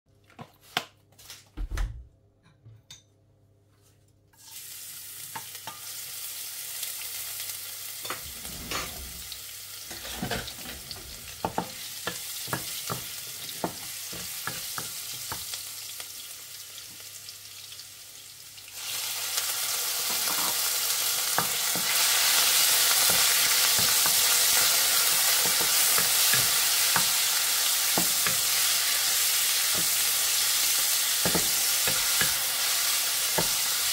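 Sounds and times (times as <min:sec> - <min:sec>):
food sizzling in hot oil: 0:04.4 - 0:33.9
wooden spatula scraping wok: 0:08.1 - 0:11.6.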